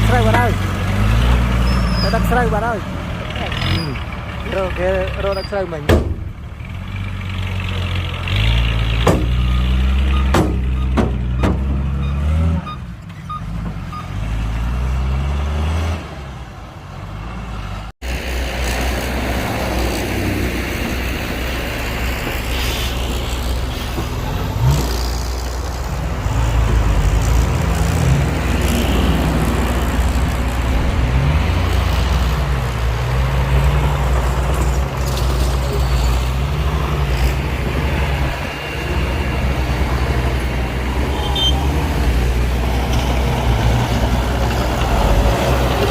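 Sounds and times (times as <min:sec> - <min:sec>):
heavy diesel engines running: 0:00.0 - 0:45.9
sharp knocks: 0:05.9 - 0:06.4, 0:09.0 - 0:09.4, 0:10.2 - 0:11.8
rough engine running: 0:18.0 - 0:45.9.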